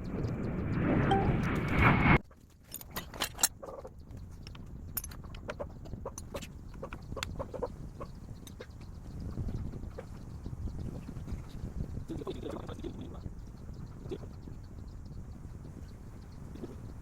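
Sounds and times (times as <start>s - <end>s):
faint low rumble: 0.0s - 2.2s, 3.5s - 17.0s
hens clucking: 5.2s - 10.4s.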